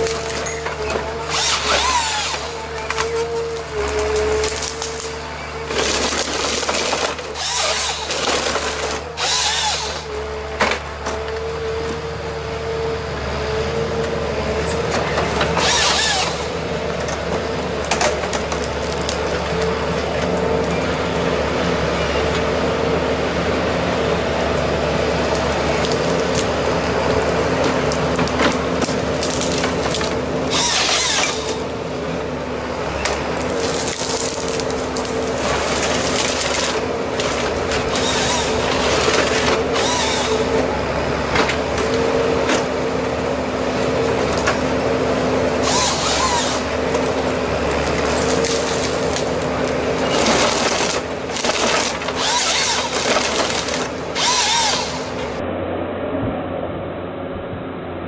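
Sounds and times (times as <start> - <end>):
wood-cutting machine engine: 0.0 - 55.5.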